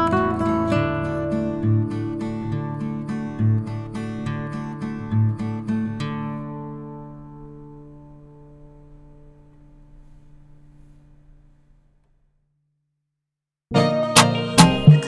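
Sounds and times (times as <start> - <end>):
guitar chord ringing: 0.0 - 11.6.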